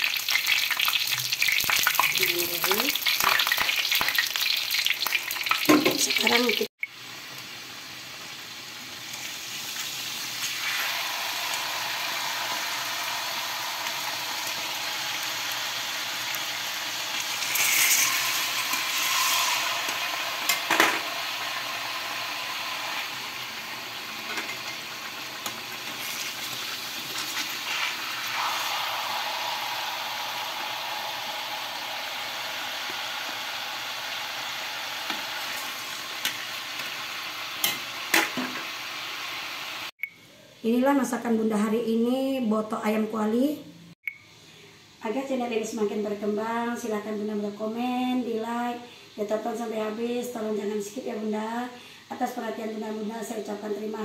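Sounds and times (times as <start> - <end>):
food sizzling in bubbling oil: 0.0 - 40.0.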